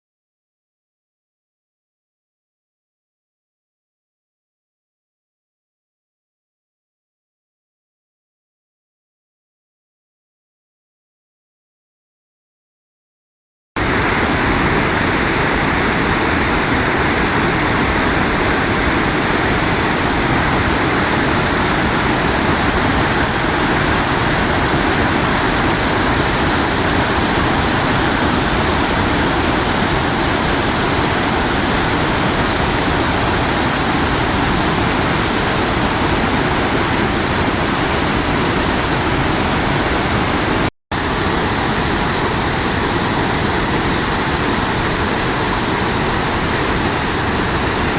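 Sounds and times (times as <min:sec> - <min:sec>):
water rushing from a dam: 0:13.8 - 0:47.9.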